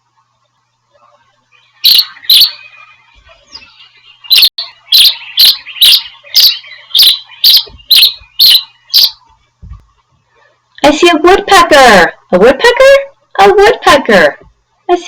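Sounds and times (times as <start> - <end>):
bird chirping: 1.5 - 9.3.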